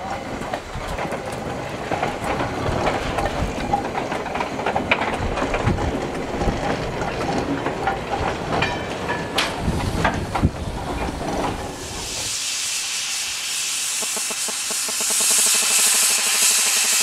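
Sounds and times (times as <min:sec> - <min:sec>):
wheels clicking over rail joints: 0:00.0 - 0:11.8
train running rumble: 0:00.0 - 0:17.0.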